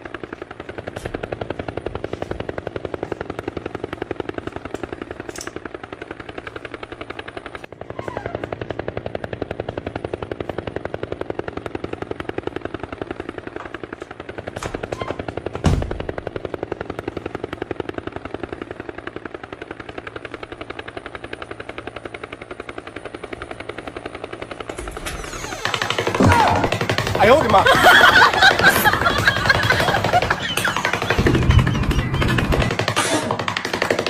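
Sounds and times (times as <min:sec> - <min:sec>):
helicopter rotor chopping: 0:00.0 - 0:34.0
loud low thump: 0:15.6 - 0:16.1.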